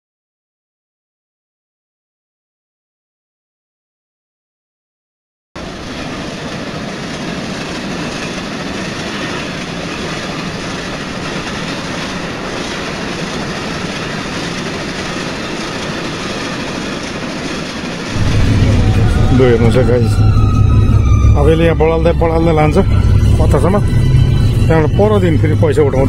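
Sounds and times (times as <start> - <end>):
passenger train running on track: 5.6 - 26.0.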